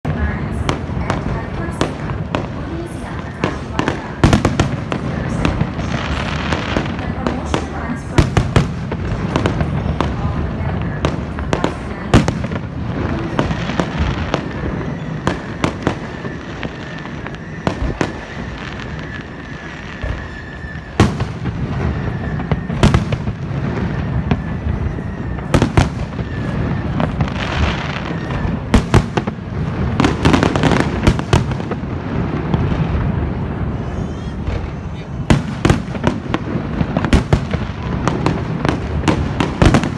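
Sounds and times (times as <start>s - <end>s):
fireworks bangs and crackles: 0.0s - 39.9s
thin whistling tone: 14.8s - 21.0s.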